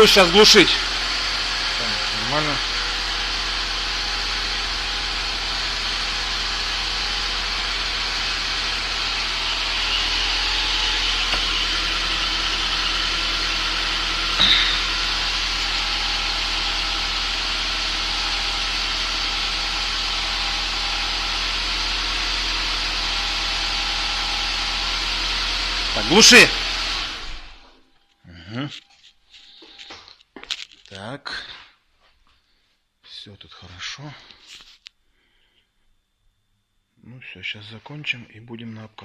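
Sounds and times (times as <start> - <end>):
car engine idling: 0.0 - 27.7.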